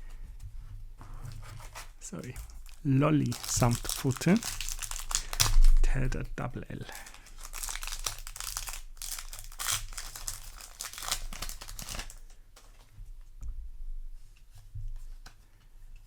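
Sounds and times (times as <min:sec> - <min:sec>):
foil wrapper crinkling: 0:01.4 - 0:06.0, 0:06.8 - 0:12.8.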